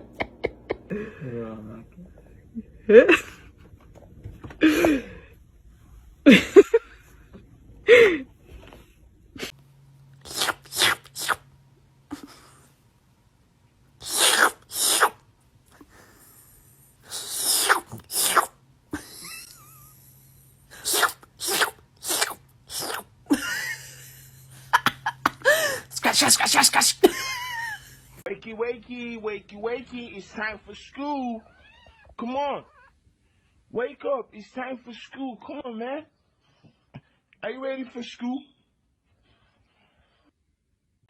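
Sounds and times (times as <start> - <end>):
short sharp sneezes: 10.3 - 11.5, 14.0 - 15.2, 17.1 - 18.6, 20.8 - 23.1, 25.8 - 27.2.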